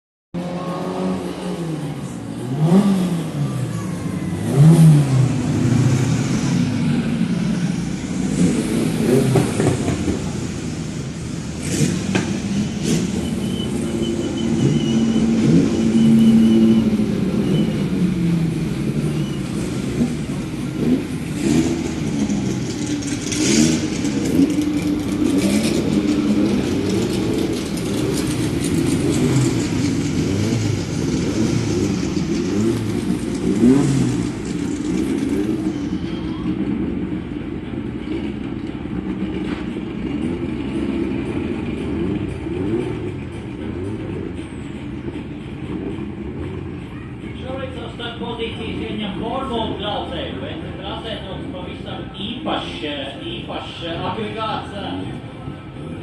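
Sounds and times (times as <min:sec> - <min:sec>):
race car engines revving: 0:00.4 - 0:56.0.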